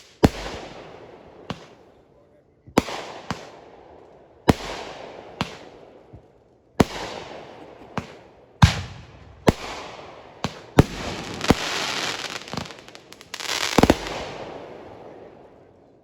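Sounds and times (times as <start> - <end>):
fireworks hiss and crackle: 2.8 - 15.9
fireworks bangs: 4.5 - 15.9.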